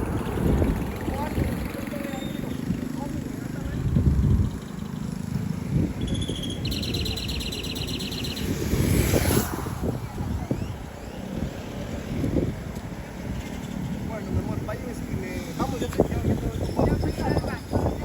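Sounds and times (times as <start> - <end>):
wind or distant traffic rumble: 0.0 - 18.0
high chirping trill: 5.9 - 9.4
rushing swish: 8.1 - 11.4.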